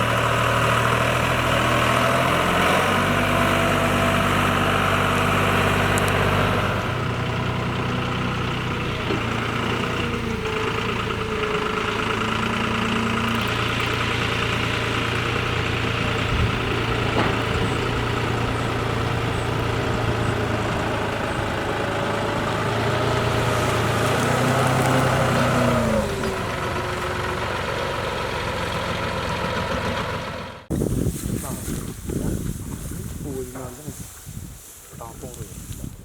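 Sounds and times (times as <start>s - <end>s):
diesel farm machinery running: 0.0s - 35.8s.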